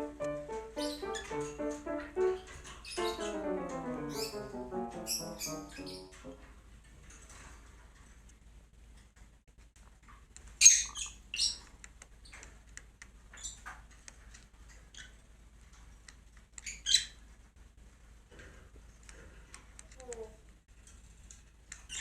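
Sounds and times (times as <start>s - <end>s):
cockatiel squawking: 0.0s - 1.7s, 2.4s - 6.4s.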